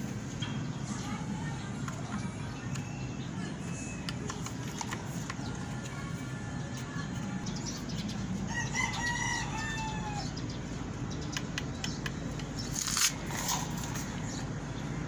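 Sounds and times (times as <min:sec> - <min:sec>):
steady low hum: 0:00.0 - 0:15.0
scattered clicks: 0:04.0 - 0:06.0, 0:11.2 - 0:14.1
rooster crowing: 0:08.5 - 0:10.3.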